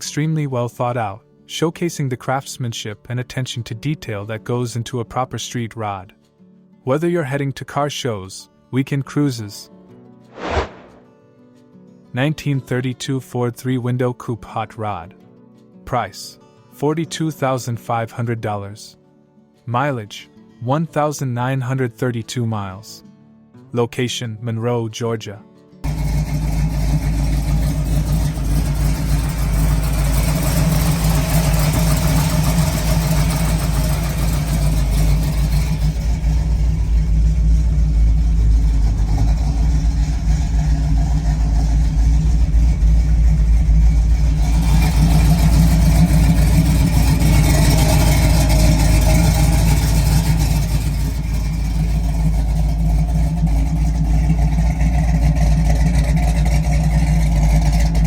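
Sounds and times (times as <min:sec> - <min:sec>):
car engine running: 0:25.8 - 0:58.0.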